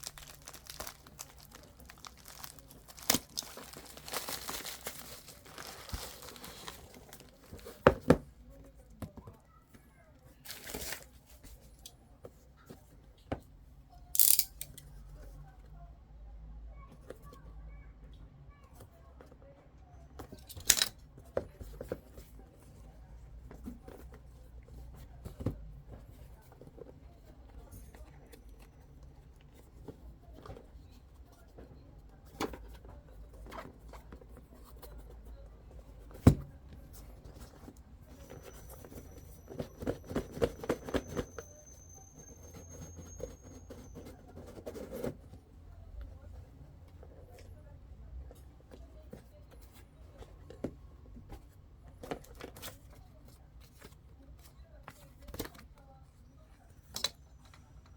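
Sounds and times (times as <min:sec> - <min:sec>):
packaging clicks and taps: 0:00.0 - 0:08.1.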